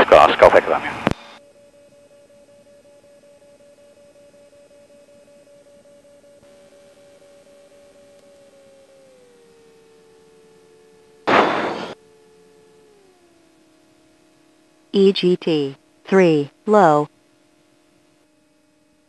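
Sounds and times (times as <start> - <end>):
faint intercom whine: 0.0 - 1.6, 14.9 - 17.1
lower tone: 1.0 - 17.1.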